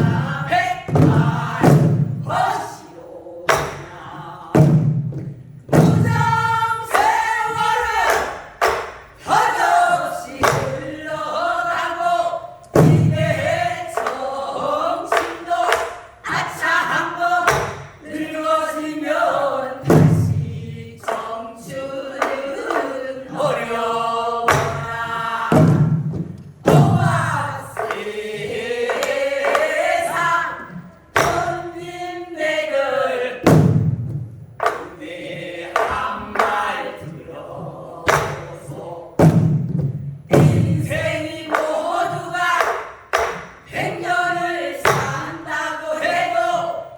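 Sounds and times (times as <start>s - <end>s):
group singing: 0.0s - 46.9s
deep drum strokes: 24.5s - 31.8s.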